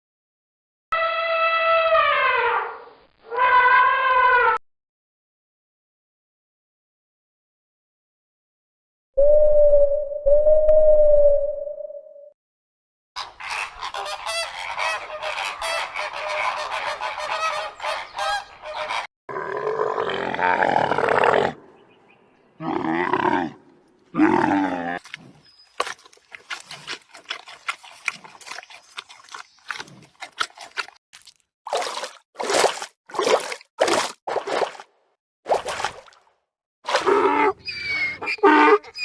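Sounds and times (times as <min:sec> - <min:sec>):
long loud animal call: 0:01.0 - 0:04.6.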